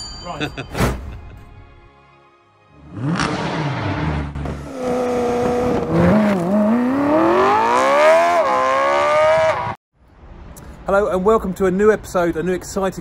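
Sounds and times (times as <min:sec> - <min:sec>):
car engine accelerating hard: 0:02.8 - 0:09.8.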